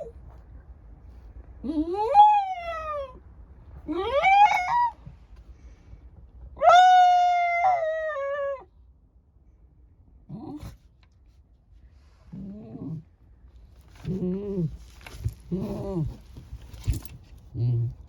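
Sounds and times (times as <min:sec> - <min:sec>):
dog low calls: 0:03.8 - 0:05.1, 0:13.9 - 0:18.0
dog howling: 0:03.9 - 0:05.0, 0:06.6 - 0:08.7.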